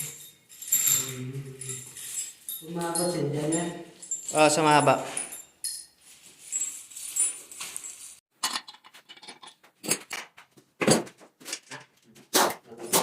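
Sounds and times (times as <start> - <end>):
metallic clinking of tools: 0.0 - 9.5.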